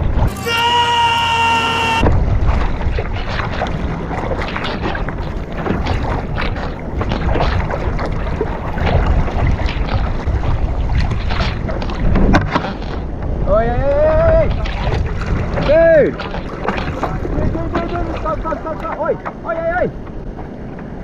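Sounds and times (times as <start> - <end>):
wind buffeting microphone: 0.0 - 0.4, 1.8 - 21.0
water splashing against kayak: 0.0 - 21.0
low rumble: 1.3 - 12.2.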